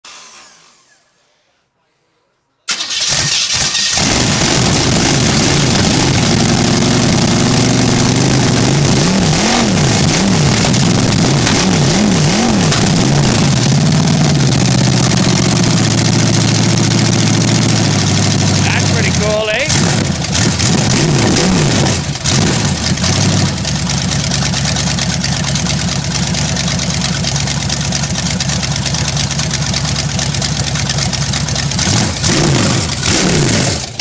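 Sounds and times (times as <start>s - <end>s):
car engine revving: 2.7s - 25.6s, 30.3s - 34.0s
car engine cranking and starting: 2.7s - 34.0s
car engine idling: 2.7s - 34.0s.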